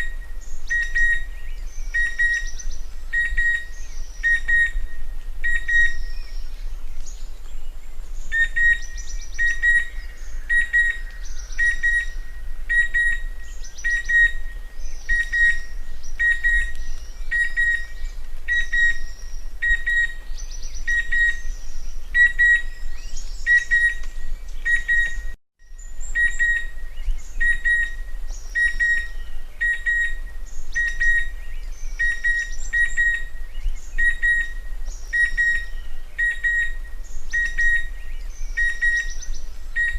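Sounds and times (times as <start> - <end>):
cuckoo whistled calls: 0.0 - 39.9.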